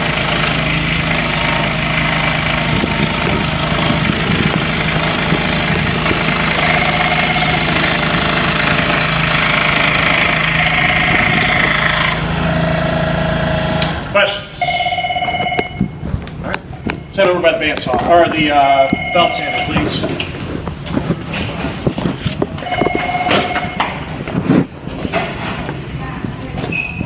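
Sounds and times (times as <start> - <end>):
scroll saw cutting wood: 6.6 - 14.0.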